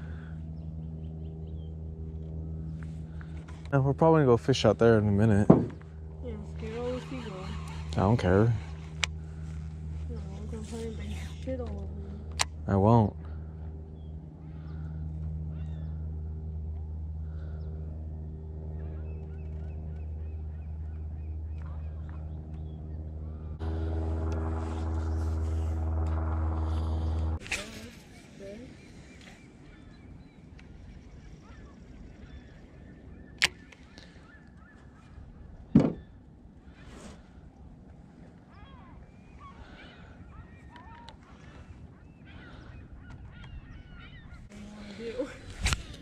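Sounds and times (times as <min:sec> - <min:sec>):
boat motor humming: 0:00.0 - 0:36.6, 0:37.4 - 0:46.0
birds chirping: 0:00.0 - 0:46.0
loud thump: 0:05.5 - 0:05.8.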